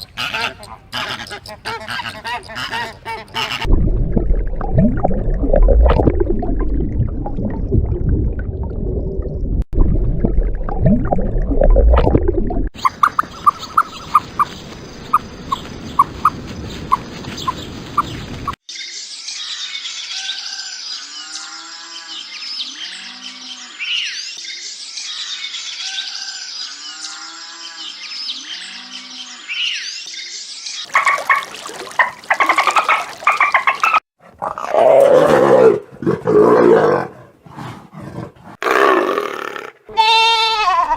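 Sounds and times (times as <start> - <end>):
rapid clicking animal calls: 0.0 - 3.6, 12.8 - 18.6.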